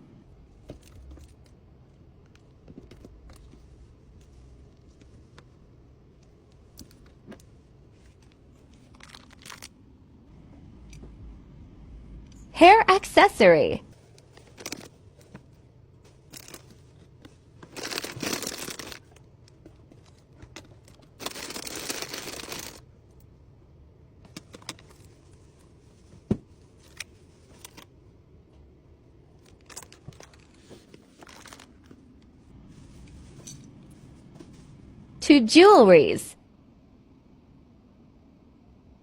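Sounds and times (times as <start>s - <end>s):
packaging crinkling: 8.8s - 9.8s.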